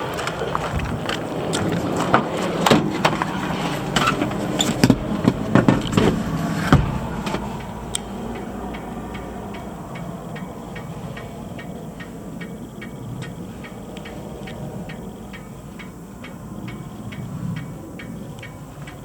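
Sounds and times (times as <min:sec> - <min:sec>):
mini truck engine idling: 0:00.0 - 0:19.0
sharp clicks and knocks: 0:00.1 - 0:12.1.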